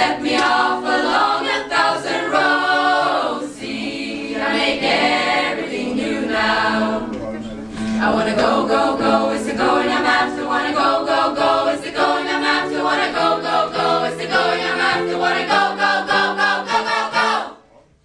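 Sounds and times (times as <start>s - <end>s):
choir singing in harmony: 0.0s - 17.6s.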